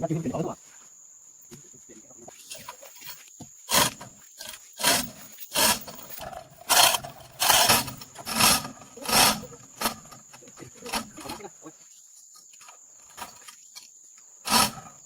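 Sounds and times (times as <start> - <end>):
rasping hand strokes: 3.7 - 10.1, 14.4 - 15.0.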